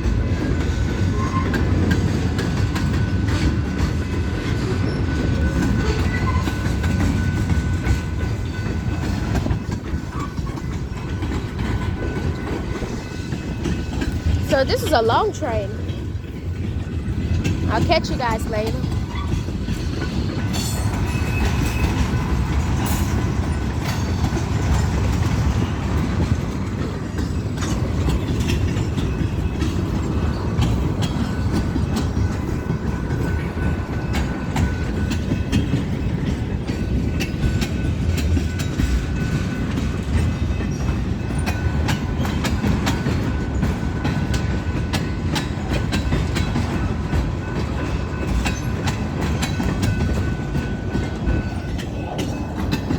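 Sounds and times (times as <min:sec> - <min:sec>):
train wheels rumbling on rail: 0:00.0 - 0:52.9
wheels clacking over rail joints: 0:00.0 - 0:52.9.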